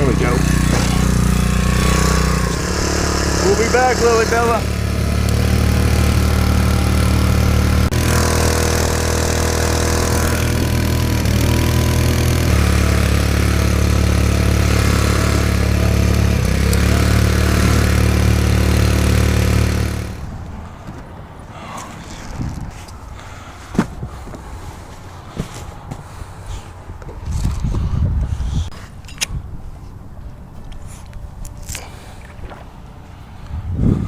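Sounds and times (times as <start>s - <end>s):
small outboard motor running: 0.0s - 20.3s.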